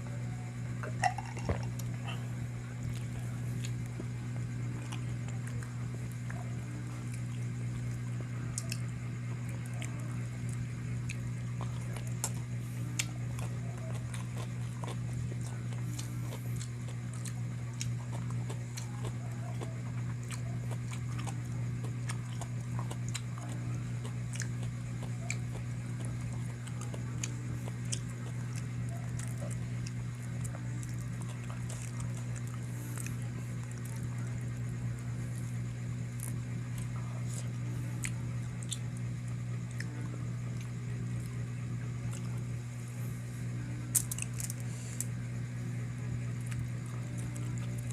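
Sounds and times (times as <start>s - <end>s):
steady low hum: 0.0s - 47.9s
person chewing food: 0.9s - 8.8s, 9.4s - 39.0s.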